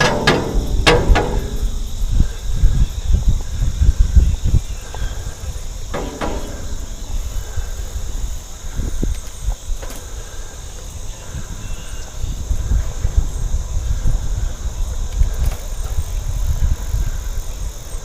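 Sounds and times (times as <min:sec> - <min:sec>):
buzzing insect chorus: 0:00.0 - 0:18.0
wind rumble on microphone: 0:00.0 - 0:18.0.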